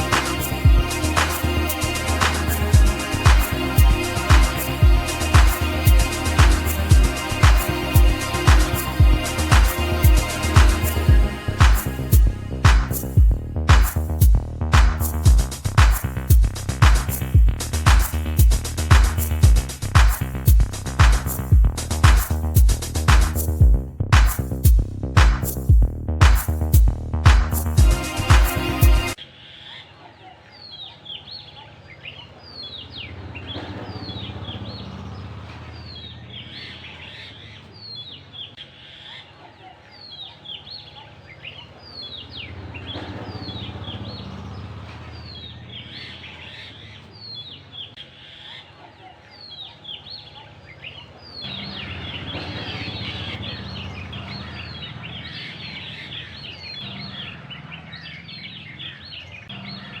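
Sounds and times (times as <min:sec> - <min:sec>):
birds calling: 0:00.0 - 0:24.8, 0:25.4 - 1:00.0
steady low rumble: 0:00.0 - 0:29.2.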